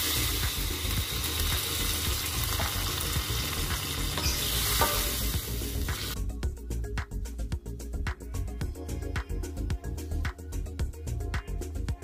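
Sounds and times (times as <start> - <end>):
food sizzling in a wok: 0.0 - 6.2
music with quick beat: 0.0 - 7.2.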